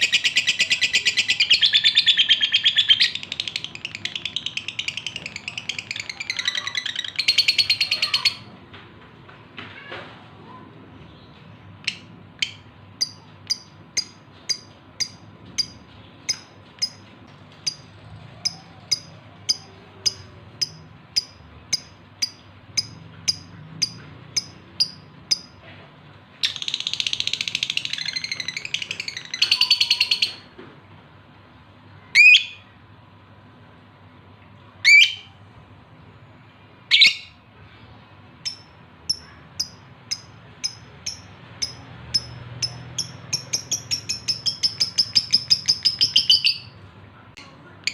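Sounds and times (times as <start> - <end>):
lovebird chirping and chattering: 0.0 - 8.5, 11.8 - 25.6, 26.4 - 30.5, 36.9 - 37.4, 38.4 - 46.8.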